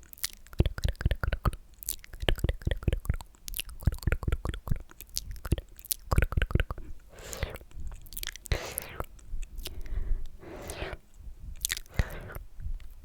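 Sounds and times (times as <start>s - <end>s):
wet lip and tongue clicks: 0.0s - 11.0s, 11.6s - 13.0s.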